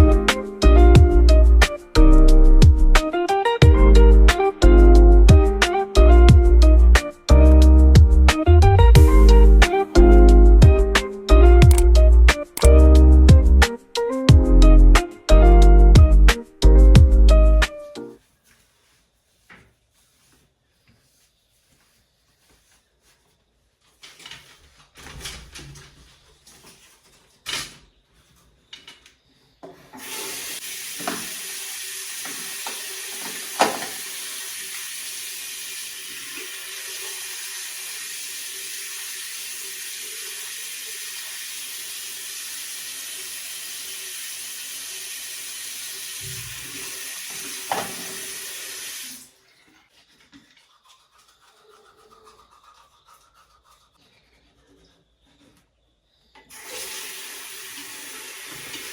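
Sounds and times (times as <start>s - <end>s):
water running: 0.0s - 17.8s, 30.0s - 53.7s, 56.5s - 58.9s.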